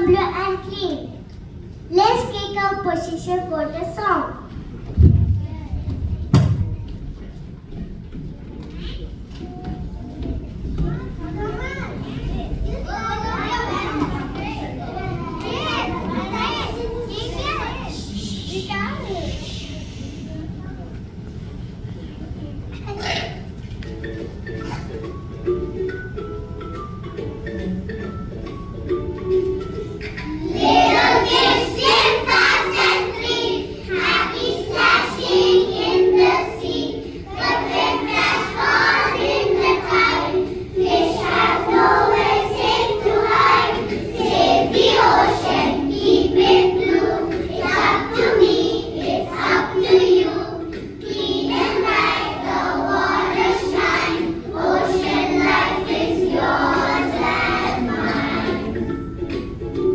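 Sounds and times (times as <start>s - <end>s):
children singing together: 11.9s - 20.2s, 29.8s - 59.9s
recorded music accompaniment: 23.0s - 59.9s.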